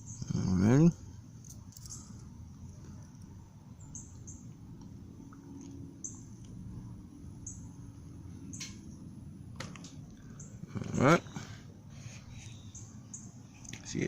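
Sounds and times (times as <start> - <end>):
faint outdoor background: 0.0 - 14.0
high bird chirps: 3.8 - 4.5, 7.4 - 7.8, 12.4 - 13.5.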